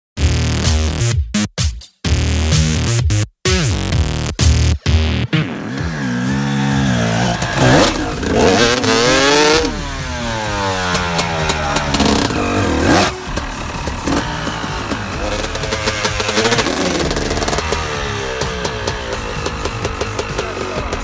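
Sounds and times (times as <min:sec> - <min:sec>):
dirt bike engine revving: 0:04.4 - 0:21.0.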